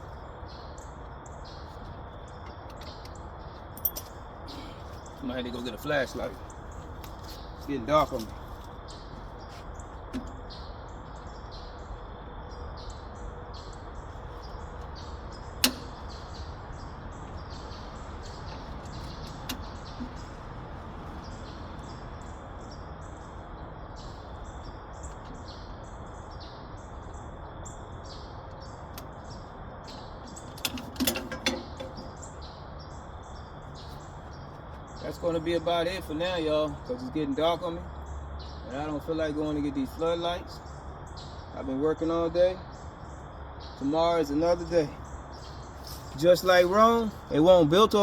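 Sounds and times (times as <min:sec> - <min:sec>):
sharp click: 0:15.6 - 0:16.3.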